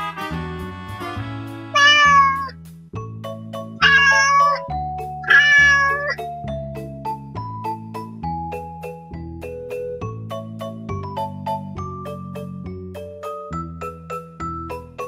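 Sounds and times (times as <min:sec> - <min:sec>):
background music: 0:00.0 - 0:15.0
cat meowing: 0:01.8 - 0:02.5, 0:03.8 - 0:06.2.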